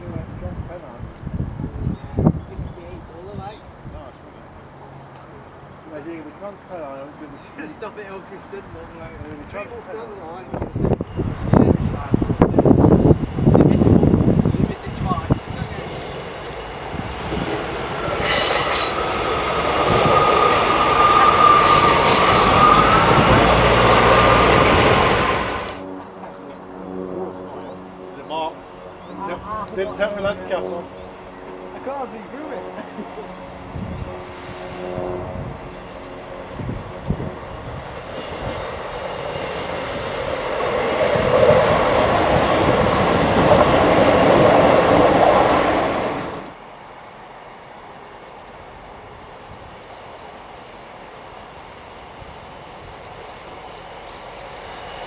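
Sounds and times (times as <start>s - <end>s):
train rumble and wheel noise: 10.5s - 26.4s, 30.2s - 55.0s
train wheels squealing on rails: 15.7s - 25.8s.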